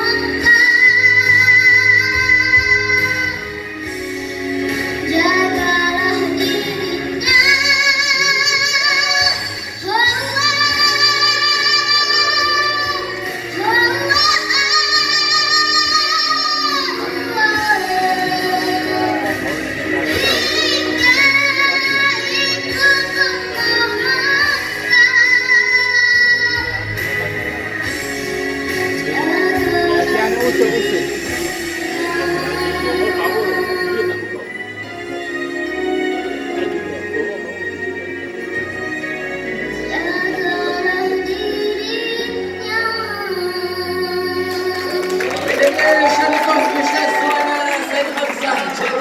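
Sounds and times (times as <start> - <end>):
child singing: 0.0 - 3.5, 5.0 - 27.0, 29.0 - 34.4, 39.8 - 47.6
backing music: 0.0 - 49.0.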